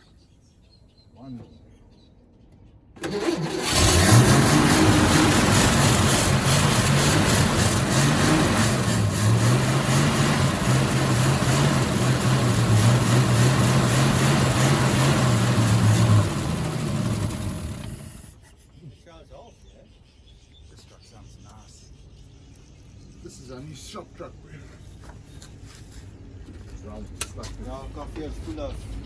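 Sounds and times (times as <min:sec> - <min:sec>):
pickup truck engine running: 0:03.0 - 0:18.3.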